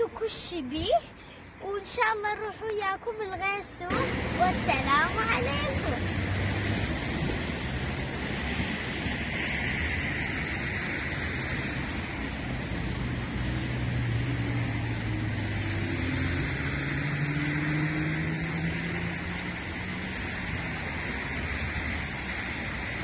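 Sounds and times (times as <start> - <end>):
street noise: 0.0 - 23.0
vehicle engine accelerating: 3.9 - 9.0, 9.9 - 22.4.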